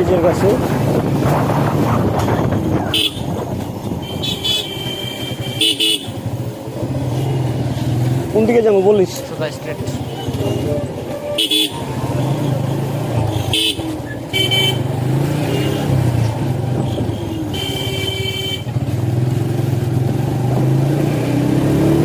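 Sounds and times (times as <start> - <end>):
vehicle horns honking: 2.8 - 6.4, 9.9 - 16.0, 16.8 - 18.8.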